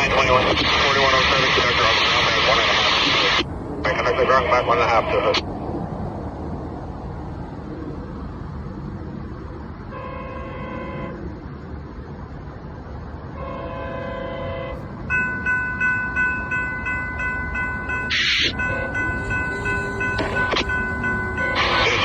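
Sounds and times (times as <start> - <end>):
train horn blasts: 9.9 - 11.2, 13.4 - 14.9, 17.8 - 22.0
bell ringing rapidly: 15.1 - 22.0.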